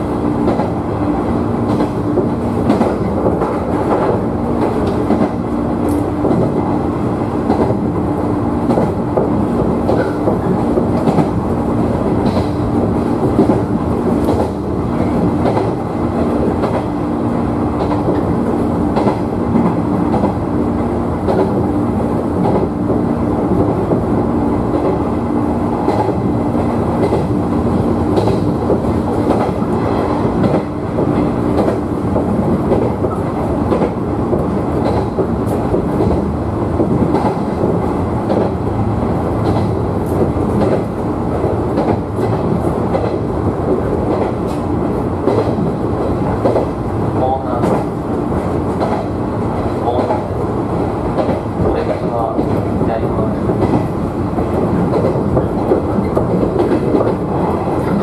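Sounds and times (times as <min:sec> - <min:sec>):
train wheels rumbling on rails: 0:00.0 - 0:58.0
clicks over rail joints: 0:30.4 - 0:36.2.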